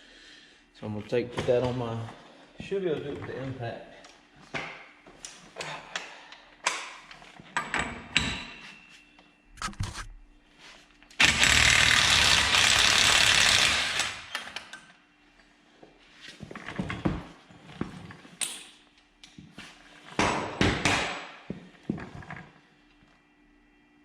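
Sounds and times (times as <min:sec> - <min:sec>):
impact wrench hammering: 0:20.2 - 0:21.3.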